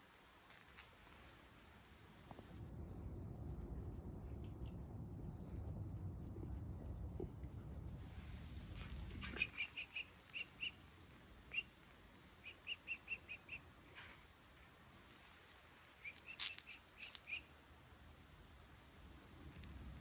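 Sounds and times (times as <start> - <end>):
low rumble: 2.2 - 12.4
small bird chirping: 9.1 - 10.9, 11.5 - 11.8, 12.4 - 14.2, 15.9 - 17.5.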